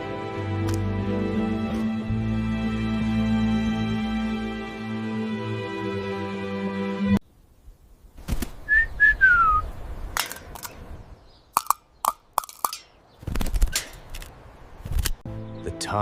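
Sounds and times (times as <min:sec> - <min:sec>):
whistle-like chirps: 0:08.7 - 0:09.7
sharp clicks and knocks: 0:11.6 - 0:14.3.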